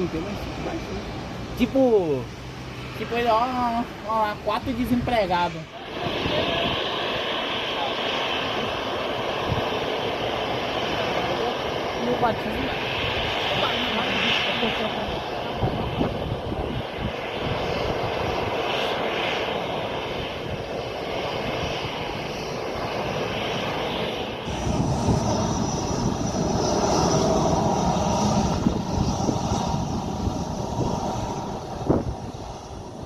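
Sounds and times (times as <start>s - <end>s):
jet engines roaring: 0.0s - 33.0s
thin high engine whine: 0.0s - 33.0s.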